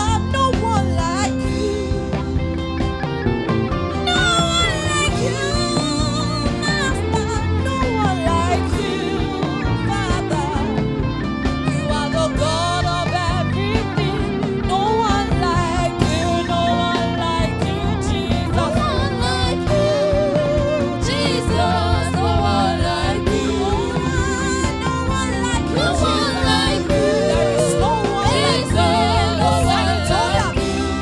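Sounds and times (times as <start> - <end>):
gospel band playing: 0.0 - 31.0
wavering melodic lead line: 0.0 - 31.0.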